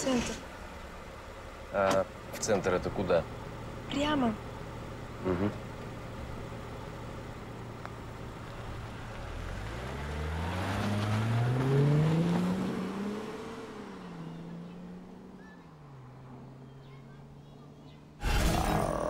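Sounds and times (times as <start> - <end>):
car engine revving: 8.5 - 17.2.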